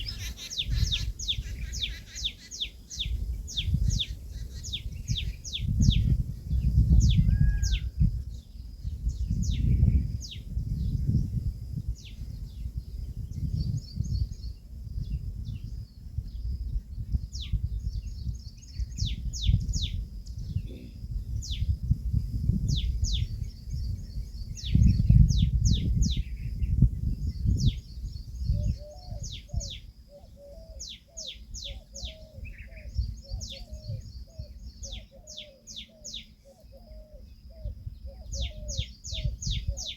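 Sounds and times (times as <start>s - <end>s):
lower short repeated bird notes: 16.8s - 21.7s.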